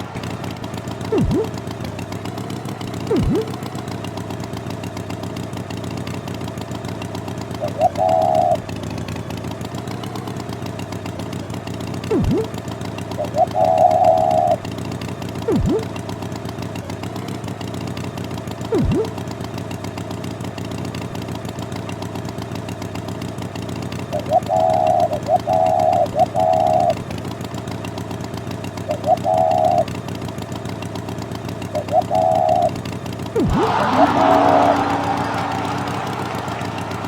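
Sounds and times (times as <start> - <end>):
quick falling swoops: 0.0 - 1.7, 3.1 - 3.6, 12.1 - 12.6, 15.5 - 16.0, 18.7 - 19.2, 33.4 - 37.0
cartoon tractor engine running: 0.0 - 37.0.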